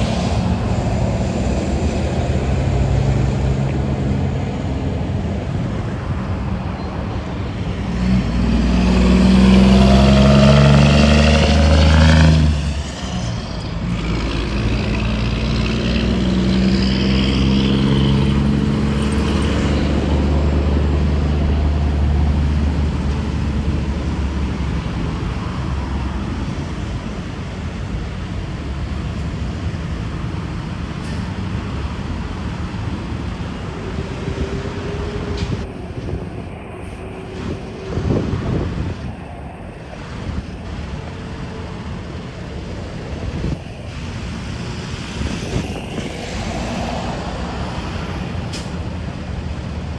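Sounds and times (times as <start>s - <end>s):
steady traffic noise: 0.0s - 49.9s
truck passing: 0.0s - 49.9s.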